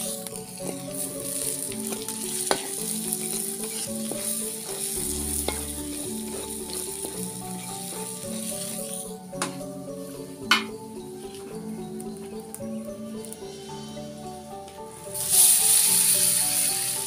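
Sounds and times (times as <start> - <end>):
paste sizzling in oil: 0.0 - 11.4, 14.9 - 17.0
background music: 0.0 - 17.0.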